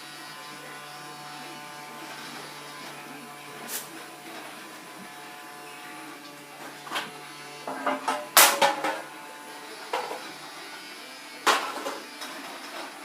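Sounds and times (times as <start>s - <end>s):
vacuum cleaner motor humming: 0.0s - 13.0s
vacuum cleaner knocking and clattering: 6.9s - 9.1s, 9.9s - 10.3s, 11.5s - 12.4s.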